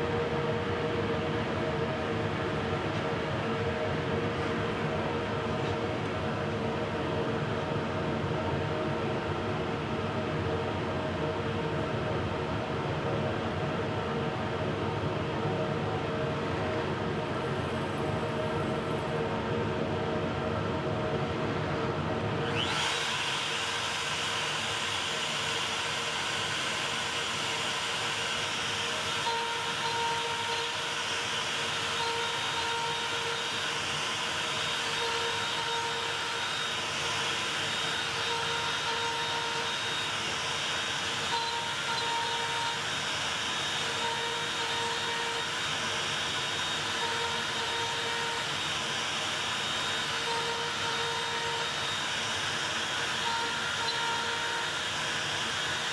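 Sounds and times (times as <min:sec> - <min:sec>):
router spinning: 0:22.4 - 0:55.9.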